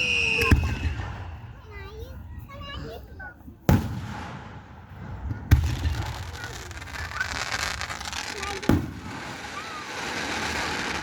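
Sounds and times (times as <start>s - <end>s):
fireworks booming: 3.7s - 11.0s
fireworks crackling hiss: 5.2s - 11.0s.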